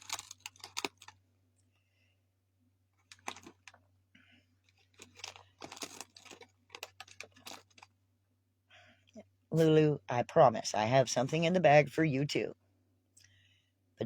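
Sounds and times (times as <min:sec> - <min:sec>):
paper bags crinkling: 0:00.0 - 0:01.2, 0:03.0 - 0:03.8, 0:04.7 - 0:07.9.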